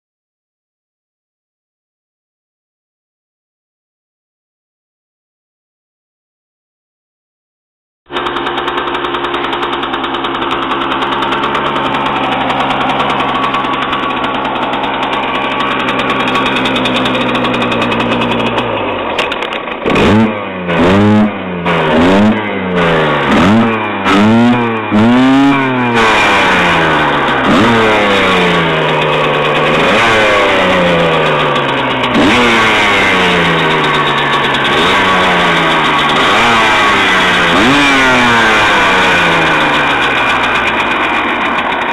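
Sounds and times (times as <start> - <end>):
two-stroke engine idling and revving: 8.1 - 41.9.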